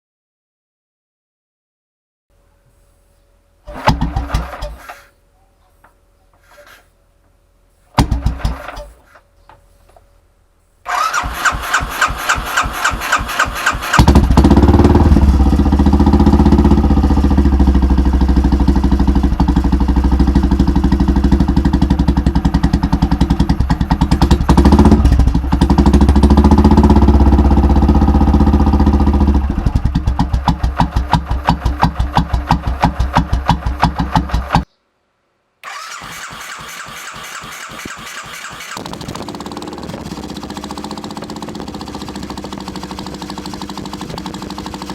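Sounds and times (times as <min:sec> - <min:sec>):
motorcycle engine idling and revving: 0:03.7 - 0:05.1, 0:08.0 - 0:09.2, 0:10.9 - 0:34.7, 0:35.6 - 0:44.9.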